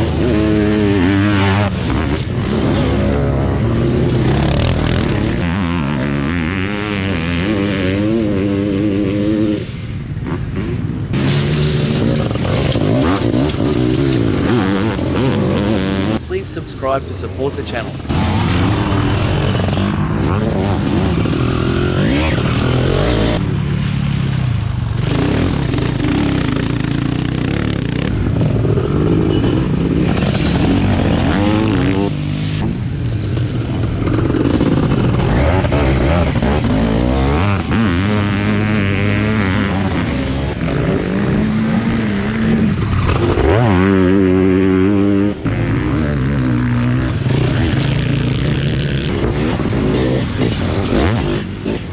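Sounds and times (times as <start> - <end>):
racing engines revving: 0.0 - 51.9.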